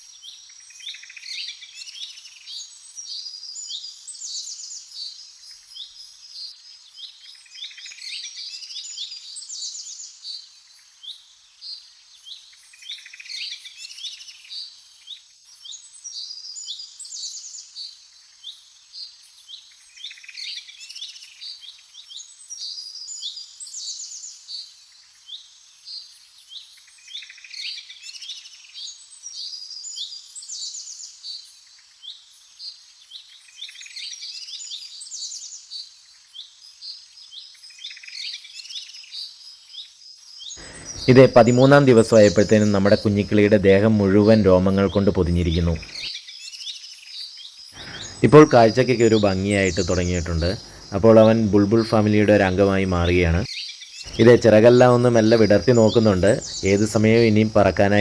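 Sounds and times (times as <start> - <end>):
small birds chirping: 34.8 - 58.0.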